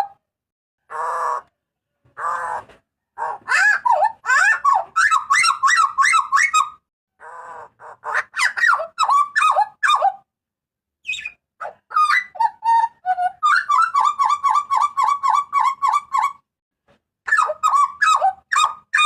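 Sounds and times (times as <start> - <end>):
bird calling harsh rapid notes: 3.2 - 6.8, 11.1 - 16.4.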